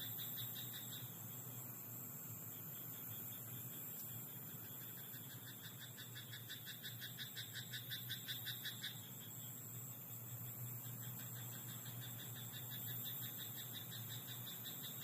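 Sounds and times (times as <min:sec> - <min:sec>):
frog croaking: 0:00.0 - 0:01.1, 0:04.0 - 0:09.4
night insects chorus: 0:00.0 - 0:15.0.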